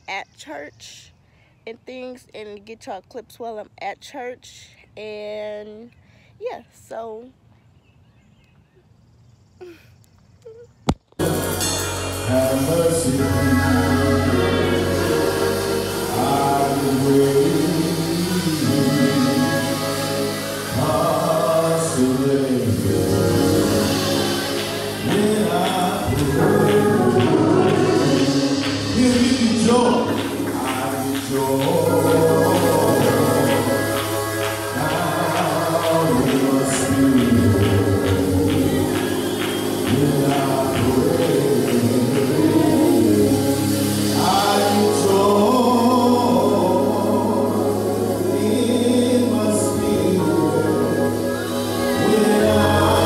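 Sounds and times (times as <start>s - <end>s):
choir singing: 11.2s - 53.0s
instrumental backing music: 11.2s - 53.0s
percussion strokes: 11.2s - 53.0s.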